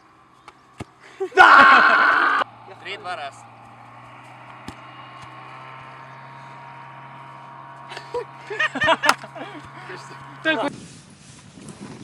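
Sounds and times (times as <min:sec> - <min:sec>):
steady low hum: 0:00.0 - 0:11.6
person calling out: 0:01.4 - 0:02.4.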